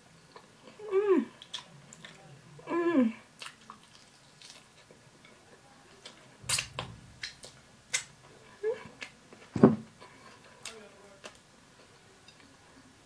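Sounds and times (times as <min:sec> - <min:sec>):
person chewing: 0:00.3 - 0:02.2, 0:03.4 - 0:05.4, 0:06.0 - 0:08.2.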